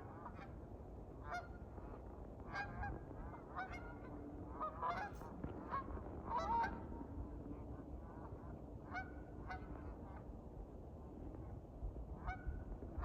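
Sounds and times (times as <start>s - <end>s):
geese honking: 3.6s - 6.8s.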